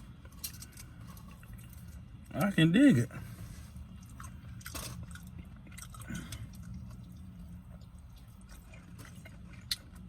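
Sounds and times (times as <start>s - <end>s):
steady low hum: 0.0s - 10.0s
person chewing: 3.4s - 10.0s.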